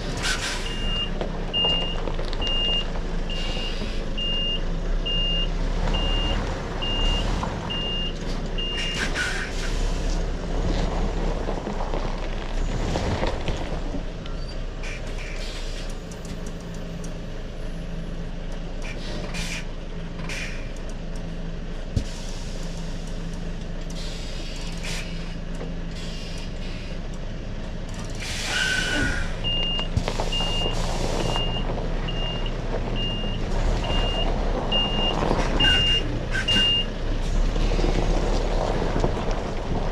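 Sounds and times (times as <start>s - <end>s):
diesel engine running: 0.0s - 39.9s
air brakes hissing: 0.1s - 1.0s, 3.3s - 4.1s, 8.7s - 10.1s, 14.4s - 16.1s, 18.8s - 20.8s, 22.0s - 23.2s, 23.8s - 27.0s, 28.0s - 31.4s, 35.4s - 37.4s
reversing alarm beeping: 28.8s - 36.9s.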